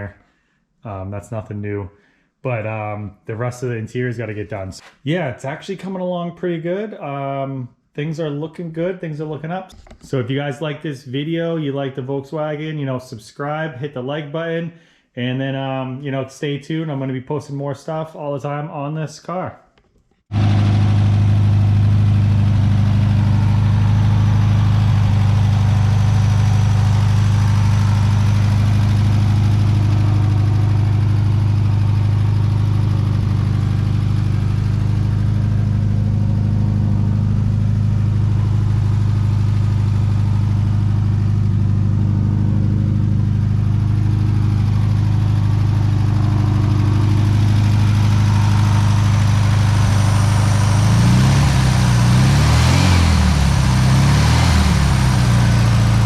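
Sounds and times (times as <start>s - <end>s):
car engine idling: 20.3s - 56.0s.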